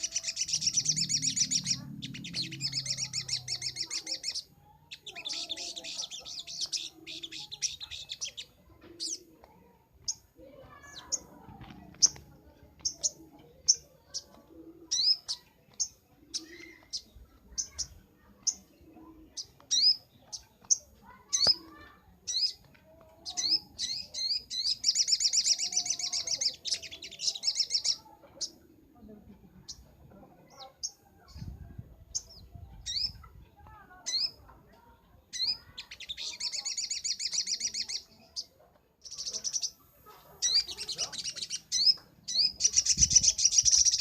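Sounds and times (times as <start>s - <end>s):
rapid high bird trill: 0.0s - 9.2s.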